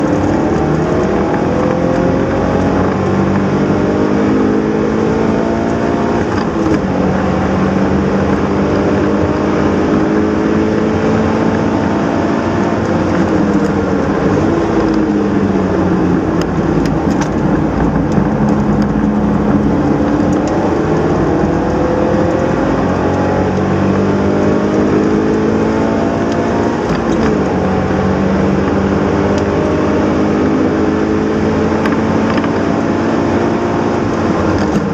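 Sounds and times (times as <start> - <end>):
car engine revving through gears: 0.0 - 34.9.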